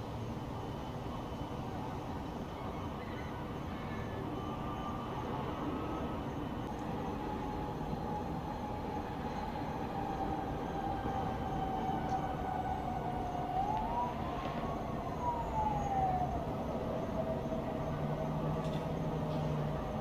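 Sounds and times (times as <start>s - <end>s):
siren wailing: 8.1s - 20.0s.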